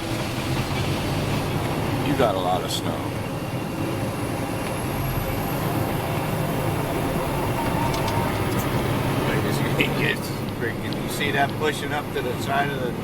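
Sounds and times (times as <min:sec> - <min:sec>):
dense rumble pushing through snow: 0:00.0 - 0:04.0
truck engine running under load: 0:00.0 - 0:13.0.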